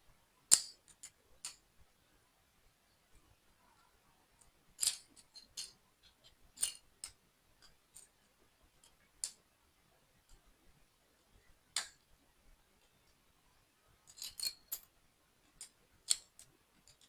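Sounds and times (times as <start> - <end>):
plastic toy blocks clicking: 0.5 - 1.6, 4.8 - 7.2, 11.7 - 12.0, 14.1 - 14.9, 15.5 - 17.0.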